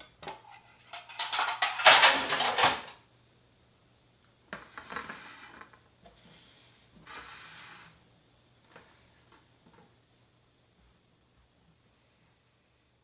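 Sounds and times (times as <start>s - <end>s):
cutlery and dishes clinking: 0.0s - 3.0s.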